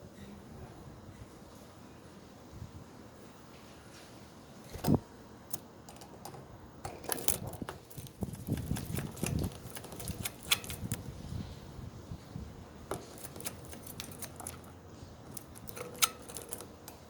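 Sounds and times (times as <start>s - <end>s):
budgies clicking and scratching: 7.2s - 11.1s, 12.9s - 17.0s.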